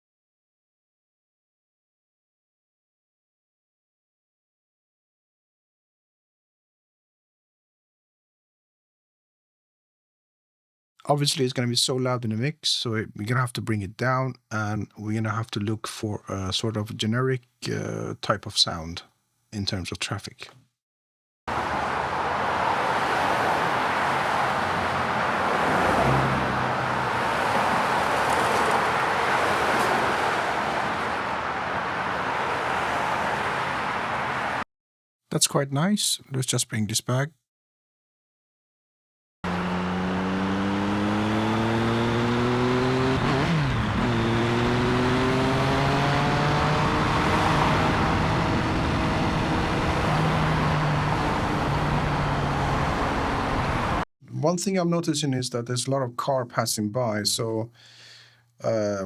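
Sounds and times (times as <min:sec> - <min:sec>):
passing cars tyre and engine noise: 0:21.5 - 0:34.6, 0:39.5 - 0:54.0.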